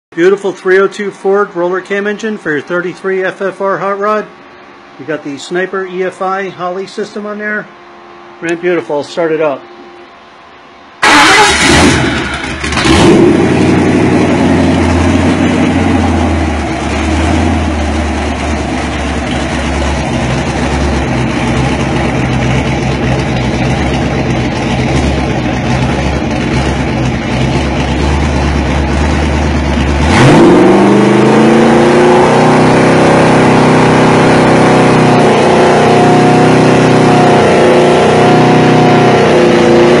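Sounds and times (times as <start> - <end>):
engine starting and idling: 11.0 - 30.3
engine revving: 11.0 - 40.0.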